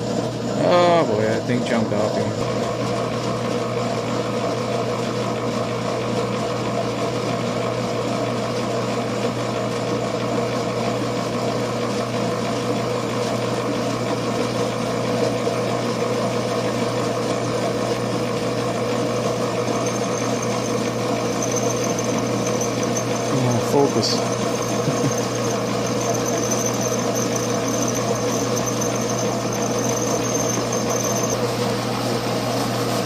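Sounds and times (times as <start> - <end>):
electric motor humming: 10.2 - 33.0.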